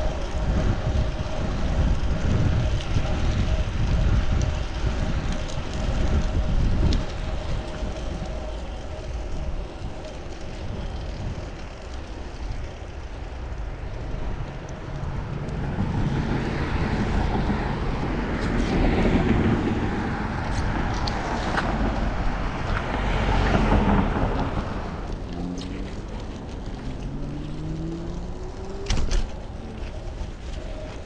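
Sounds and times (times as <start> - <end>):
traffic passing: 0.0 - 31.0
engine note rising: 21.6 - 29.7.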